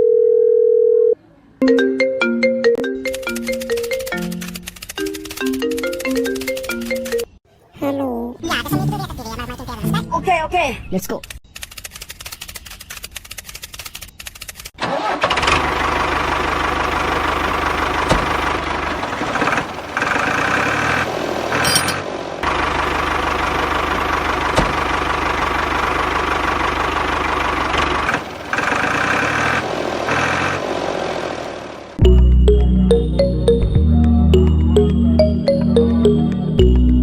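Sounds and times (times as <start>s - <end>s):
miniature tractor motor running: 14.8s - 31.2s.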